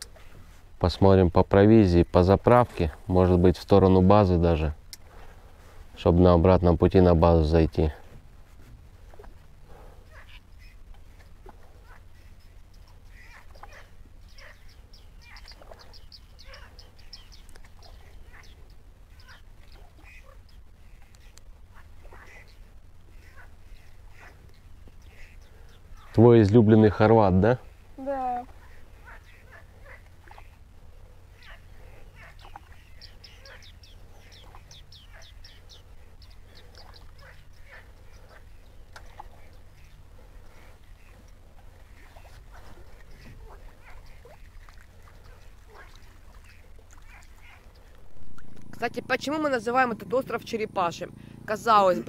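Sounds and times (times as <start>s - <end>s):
low downward-sliding bird calls: 10.0s - 26.2s, 31.3s - 50.3s.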